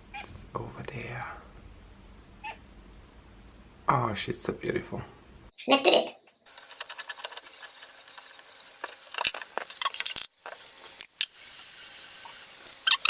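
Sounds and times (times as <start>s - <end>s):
utensils clinking against glass: 6.5s - 11.4s
short high squeaks: 12.7s - 13.0s.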